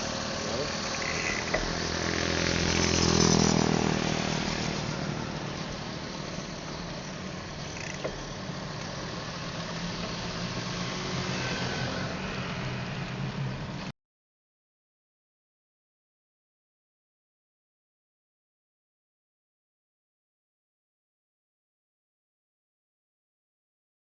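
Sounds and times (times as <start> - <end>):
traffic and road noise: 0.0 - 13.9
vehicle engine passing: 0.0 - 13.9.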